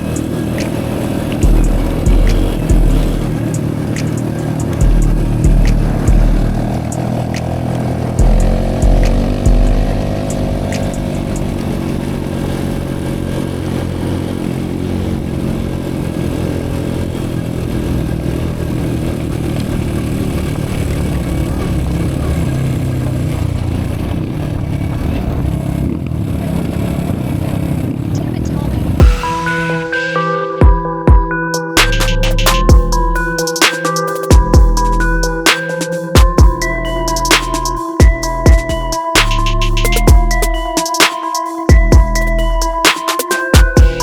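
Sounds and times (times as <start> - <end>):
dirt bike engine revving: 0.0 - 24.4
heavy low thumps: 1.4 - 3.5, 4.8 - 6.9, 8.2 - 11.2, 32.0 - 33.4, 34.3 - 35.4, 36.2 - 40.8, 41.7 - 42.8.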